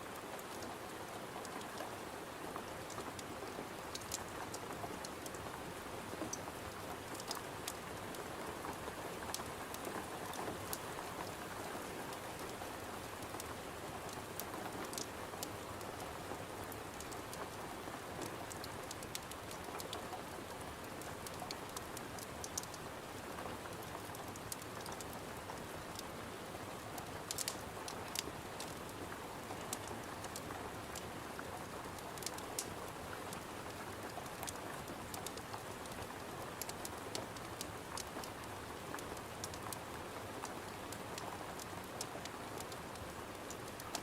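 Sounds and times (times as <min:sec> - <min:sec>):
rain against a window: 0:00.0 - 0:44.0
log fire crackling: 0:18.5 - 0:20.0, 0:20.7 - 0:23.1, 0:26.9 - 0:28.9, 0:32.2 - 0:32.7.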